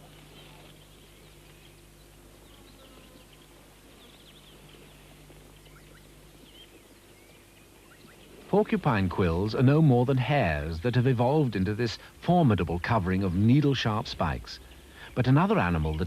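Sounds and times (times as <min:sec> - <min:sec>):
low steady hum: 0:00.0 - 0:16.0
quiet hiss: 0:00.0 - 0:16.0
bird chirps: 0:00.2 - 0:08.4.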